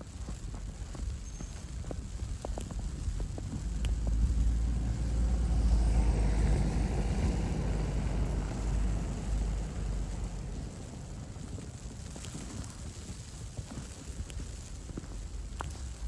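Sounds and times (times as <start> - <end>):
footsteps crunching in snow: 0.0 - 16.0
car driving past: 3.3 - 12.2.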